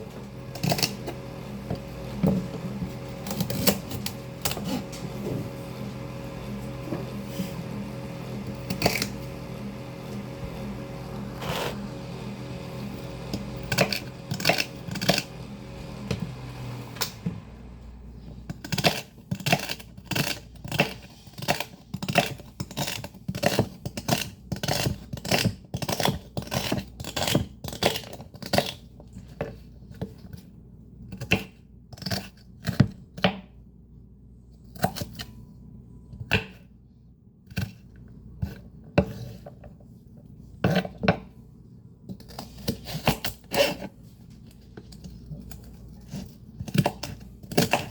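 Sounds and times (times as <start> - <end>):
fan humming: 0.0 - 18.8
knife chopping greens: 0.5 - 5.5, 12.9 - 17.2.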